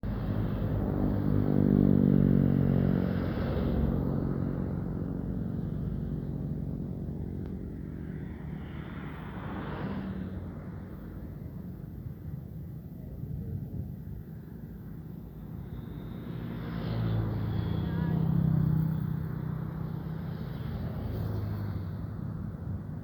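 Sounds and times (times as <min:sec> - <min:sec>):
vehicle passing by: 0:00.0 - 0:10.9, 0:15.6 - 0:22.8
quieter vehicle passing: 0:00.0 - 0:12.1, 0:15.3 - 0:23.0.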